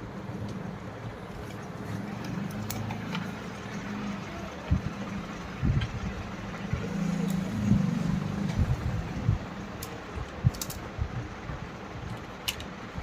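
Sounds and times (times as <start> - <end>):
sharp clicks and knocks: 9.8 - 10.9, 12.0 - 12.8.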